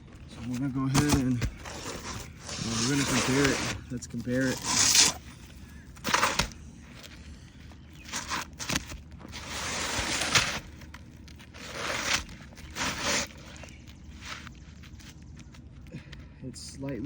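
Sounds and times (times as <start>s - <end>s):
roof shingles scraping: 0.3s - 15.2s.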